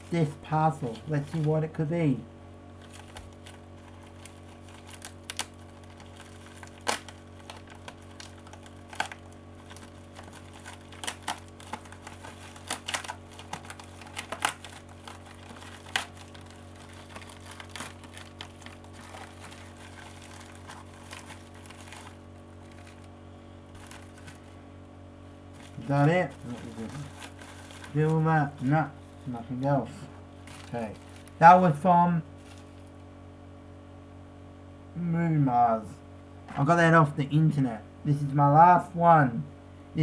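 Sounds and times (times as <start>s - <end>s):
packaging being opened by hand: 0.0s - 1.6s, 2.8s - 24.6s, 25.5s - 29.6s, 30.4s - 32.9s
low electrical hum: 0.0s - 40.0s.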